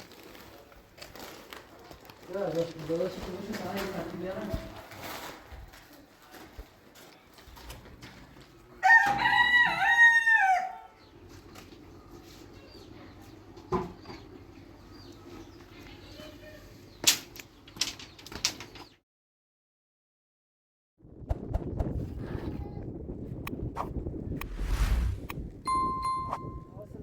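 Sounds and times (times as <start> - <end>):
rooster crowing: 8.8 - 11.0.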